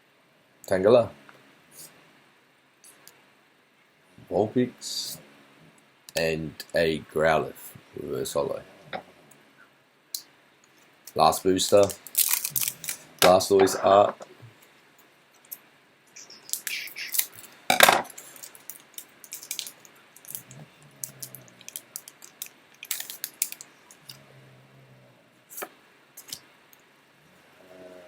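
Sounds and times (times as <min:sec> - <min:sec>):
foil wrapper tearing and crinkling: 0:11.6 - 0:13.2, 0:16.4 - 0:20.4, 0:21.0 - 0:23.7.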